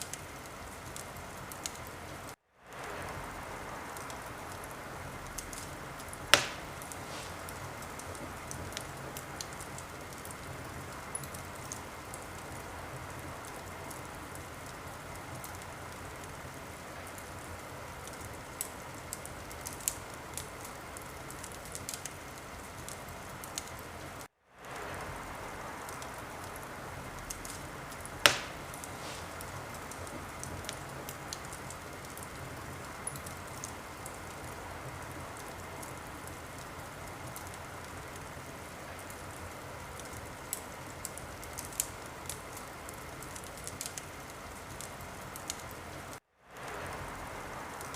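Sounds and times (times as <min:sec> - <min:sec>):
wood fire crackling: 0:00.0 - 0:47.9
loud sharp pops: 0:06.3 - 0:08.4, 0:27.3 - 0:30.9.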